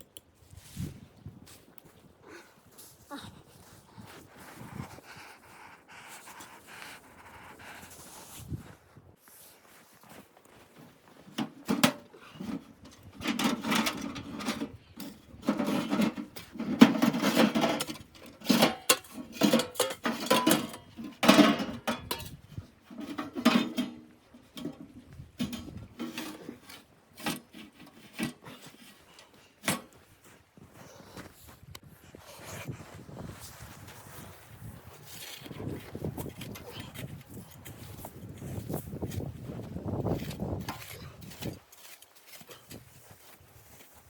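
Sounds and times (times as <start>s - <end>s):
objects clattering and scraping: 11.2s - 30.0s.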